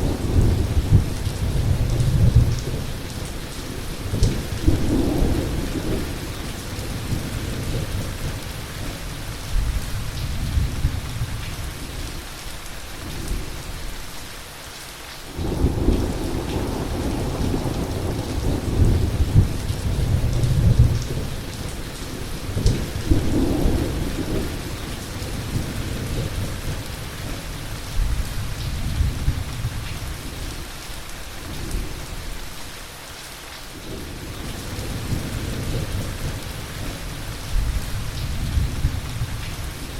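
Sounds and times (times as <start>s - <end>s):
rolling thunder: 0.0s - 9.0s, 15.4s - 30.5s
heavy rain falling: 0.0s - 39.9s.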